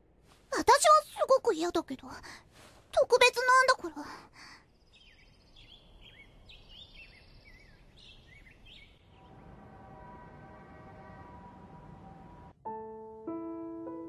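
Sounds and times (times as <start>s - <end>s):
faint birds chirping: 2.1s - 12.6s.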